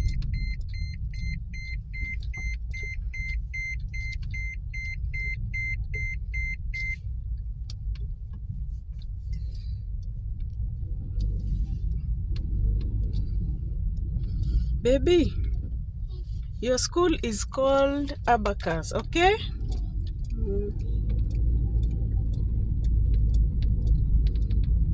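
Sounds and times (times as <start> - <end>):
car warning chime beeping: 0.0 - 7.0.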